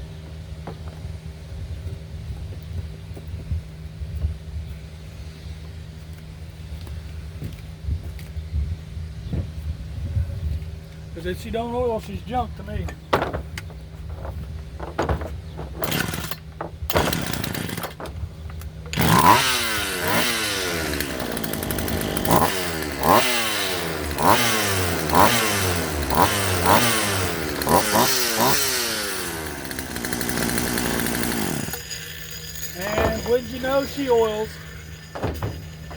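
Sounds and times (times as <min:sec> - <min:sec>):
chainsaw engine revving: 0:14.8 - 0:18.2, 0:18.8 - 0:35.9.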